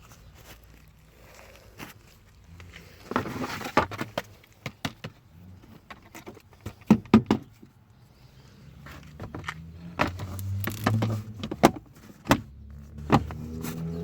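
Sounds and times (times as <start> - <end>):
sharp clicks and knocks: 9.2 - 13.4.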